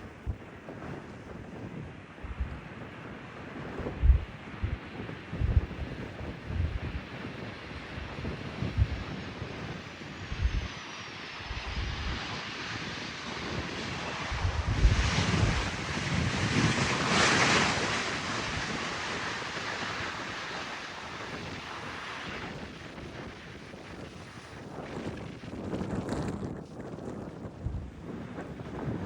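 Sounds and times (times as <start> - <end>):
wind buffeting microphone: 0.0 - 29.0
airliner passing: 2.2 - 25.2.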